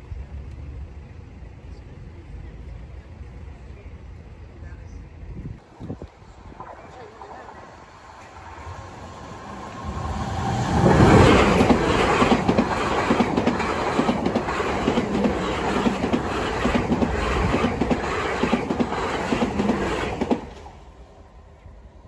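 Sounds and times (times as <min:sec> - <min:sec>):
electric train passing: 0:05.6 - 0:22.0
clickety-clack of train wheels: 0:09.3 - 0:20.9.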